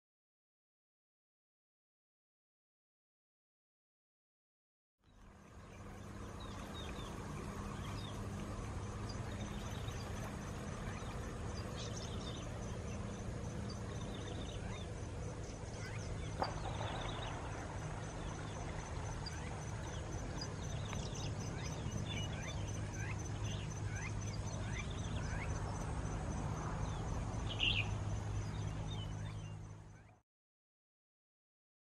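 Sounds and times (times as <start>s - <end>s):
steady low hum: 5.0s - 30.2s.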